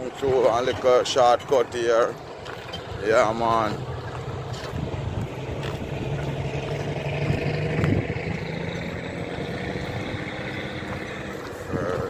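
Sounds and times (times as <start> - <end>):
road and air noise: 0.0 - 12.0
vehicle engine running: 0.0 - 12.0.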